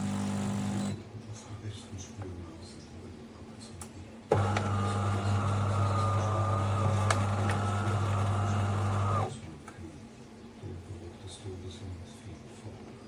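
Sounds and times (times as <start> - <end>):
coffee machine buzzing and whining: 0.0 - 1.0, 4.3 - 9.4.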